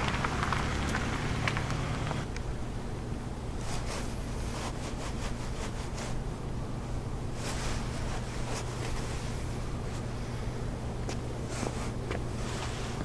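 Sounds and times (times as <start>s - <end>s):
steady low hum: 0.0s - 13.0s
padded jacket rustling: 7.3s - 10.1s.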